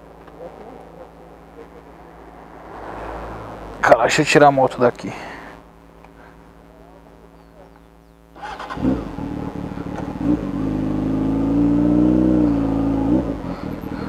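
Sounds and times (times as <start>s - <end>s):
motorcycle engine revving: 0.6s - 4.4s, 8.3s - 14.0s.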